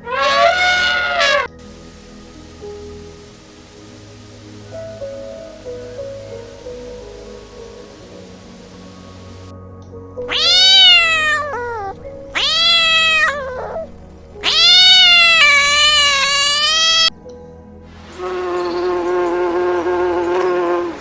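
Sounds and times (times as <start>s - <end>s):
soft background music: 0.0s - 21.0s
cat meowing: 10.3s - 17.1s.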